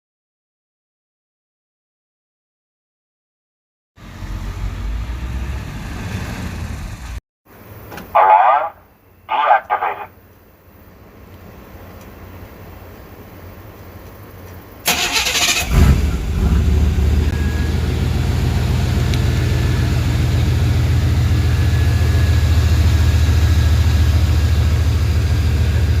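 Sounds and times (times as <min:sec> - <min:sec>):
truck engine starting and idling: 0:04.0 - 0:08.7, 0:14.8 - 0:26.0.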